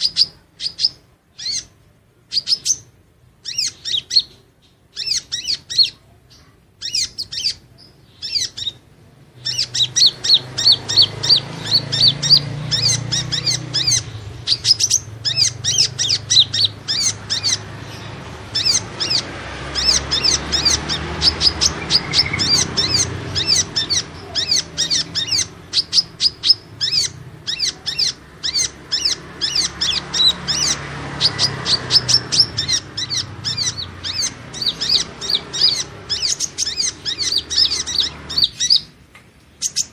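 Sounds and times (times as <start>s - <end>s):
sunbird high thin chirps: 9.4s - 39.9s.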